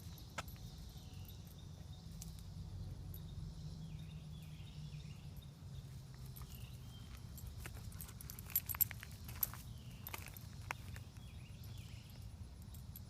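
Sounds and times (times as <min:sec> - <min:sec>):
crickets and insects chirping: 0:00.0 - 0:13.0.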